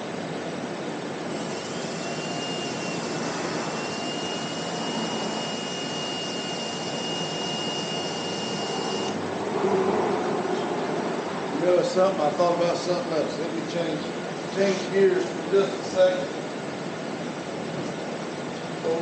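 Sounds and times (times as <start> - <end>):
small motor whining: 1.3 - 9.2.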